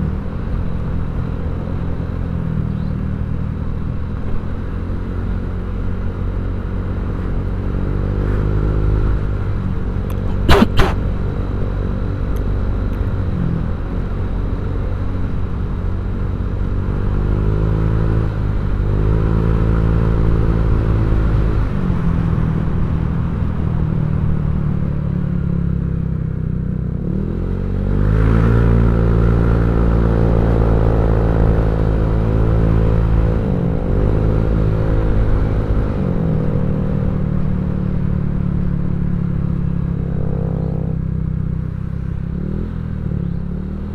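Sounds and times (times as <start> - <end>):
scooter engine revving: 10.1 - 11.0.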